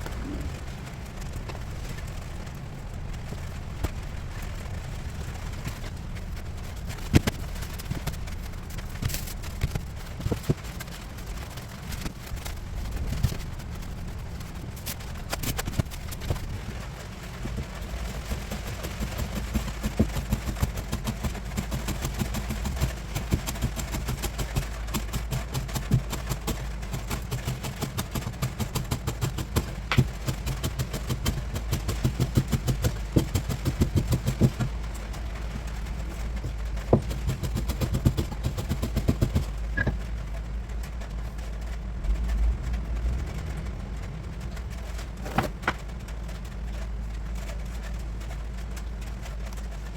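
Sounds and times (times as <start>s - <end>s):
sharp clicks and knocks: 14.8s - 41.6s, 44.5s - 46.4s.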